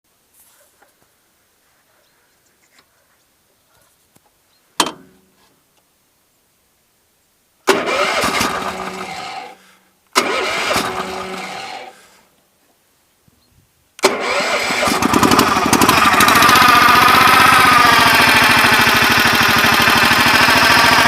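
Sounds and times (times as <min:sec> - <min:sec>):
small engine start attempts: 0:07.7 - 0:12.1, 0:14.0 - 0:21.0.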